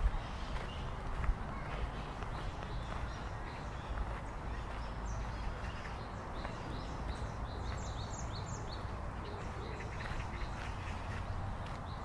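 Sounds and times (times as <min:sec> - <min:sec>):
footsteps on a dirt path: 0:00.0 - 0:12.0
small birds chirping: 0:00.0 - 0:12.0.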